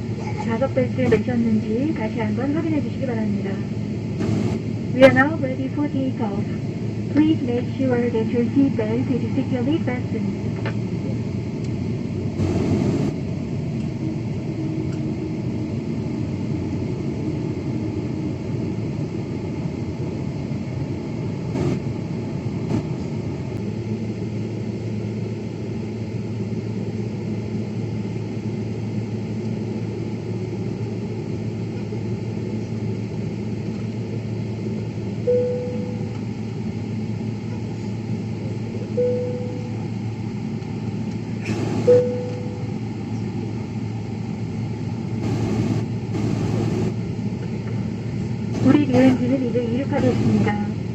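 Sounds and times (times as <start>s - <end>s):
airliner cabin rumble: 0.0s - 50.9s
low even hum: 0.0s - 50.9s
short tones: 41.8s - 42.8s.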